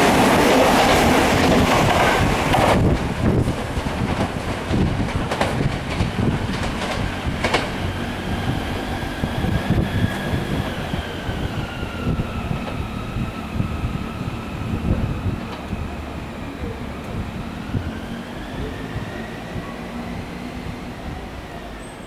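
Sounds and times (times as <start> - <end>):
train wheels clacking over rail joints: 0.0 - 10.8
high train whine: 0.0 - 22.0
train rumble: 0.0 - 22.0.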